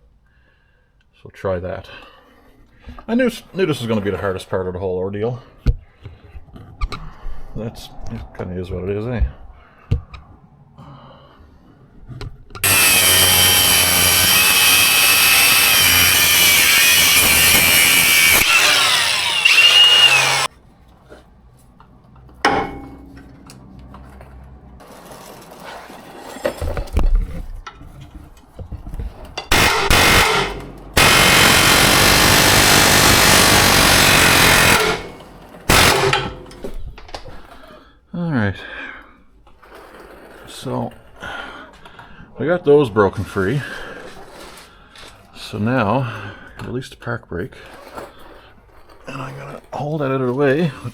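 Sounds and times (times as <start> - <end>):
reciprocating saw cutting metal: 12.6 - 20.5, 29.5 - 36.8.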